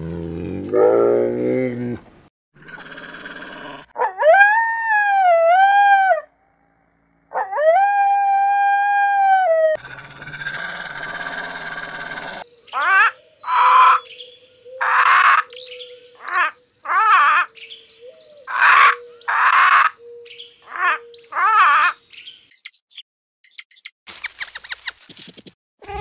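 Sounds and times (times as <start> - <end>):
wolf howling: 2.7 - 6.3, 7.3 - 12.4
cockatoos screeching: 9.8 - 12.4.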